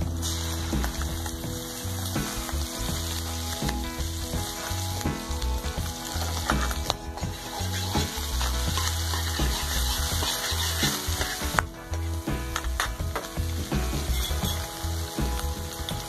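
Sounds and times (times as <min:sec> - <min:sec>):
food sizzling in hot oil: 0:00.1 - 0:11.6
metal spatula scraping wok: 0:06.2 - 0:12.1.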